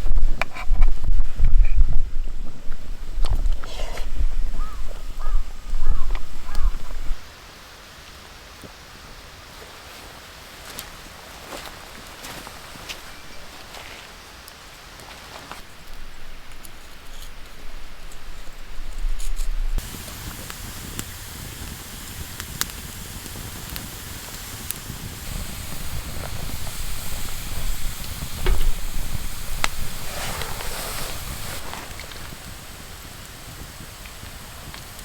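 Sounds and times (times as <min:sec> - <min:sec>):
wood fire crackling: 0:00.0 - 0:35.0
sharp pops of fire: 0:19.3 - 0:35.0.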